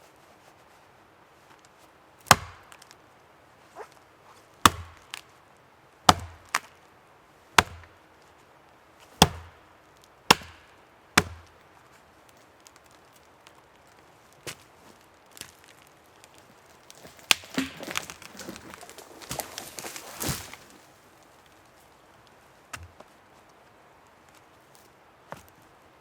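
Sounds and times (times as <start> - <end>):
axe chopping wood: 2.2 - 2.9, 4.6 - 5.2, 6.1 - 6.7, 7.6 - 8.0, 9.2 - 9.6, 10.3 - 11.6, 17.0 - 20.8.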